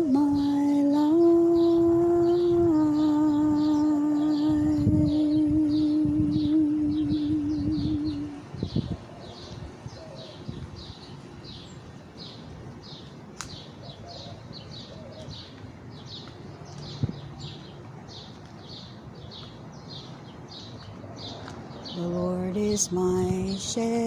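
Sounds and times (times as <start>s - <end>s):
bird chirping: 0.0s - 24.0s
outdoor background noise: 0.0s - 24.0s
sharp click: 13.4s - 13.6s.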